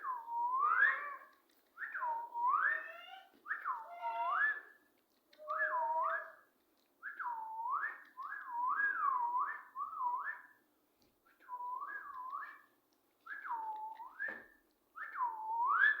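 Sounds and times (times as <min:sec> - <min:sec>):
parrot whistling: 0:00.0 - 0:01.2, 0:01.8 - 0:04.7, 0:05.4 - 0:06.4, 0:15.0 - 0:16.0.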